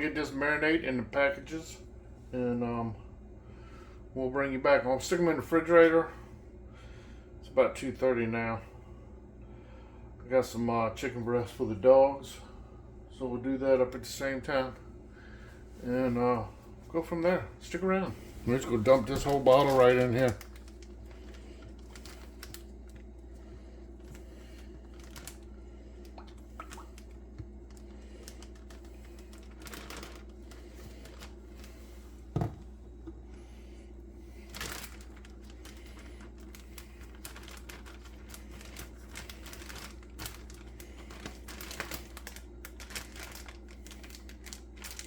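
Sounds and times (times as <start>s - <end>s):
steady low hum: 0.0s - 45.0s
plastic bags crinkling: 18.2s - 33.3s, 34.2s - 45.0s.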